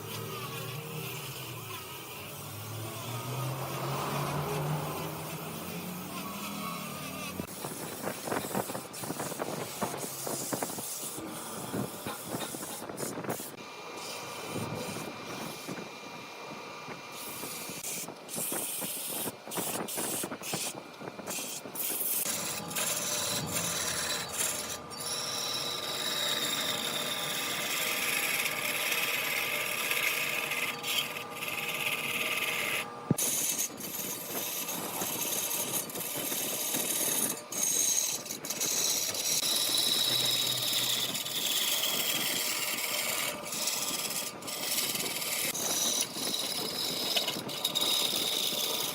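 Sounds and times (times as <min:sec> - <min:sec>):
lathe tool scraping wood: 0:00.0 - 0:48.9.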